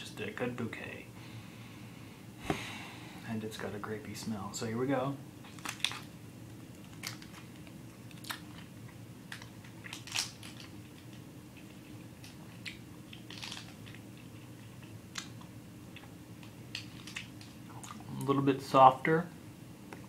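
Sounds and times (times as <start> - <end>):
mouth chewing candy: 6.7 - 18.3.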